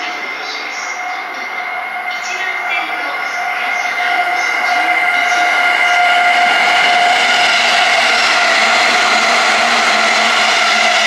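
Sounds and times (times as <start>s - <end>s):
electric train running: 0.0s - 11.0s
high-pitched whine: 0.0s - 11.0s.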